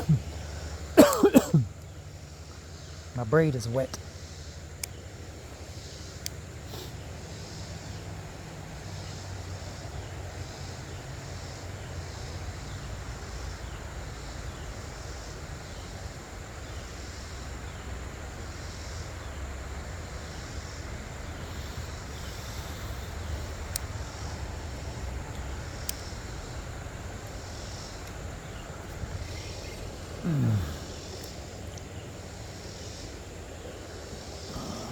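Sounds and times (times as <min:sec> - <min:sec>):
wind buffeting microphone: 0:20.9 - 0:34.9.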